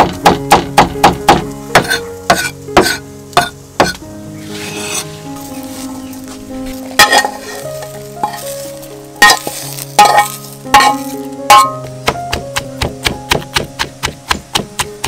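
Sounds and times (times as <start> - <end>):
food sizzling in a pan: 4.3 - 11.2
utensil clanking against pan: 7.0 - 8.4.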